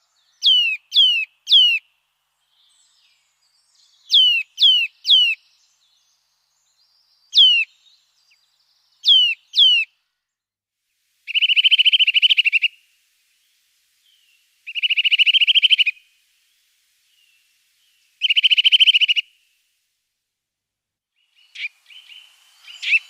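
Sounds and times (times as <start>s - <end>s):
bird trills: 11.3s - 12.8s, 14.7s - 16.1s, 18.2s - 19.4s, 21.4s - 23.0s
bird whistled notes: 11.3s - 12.8s, 14.7s - 16.0s, 18.2s - 19.3s, 21.4s - 23.0s.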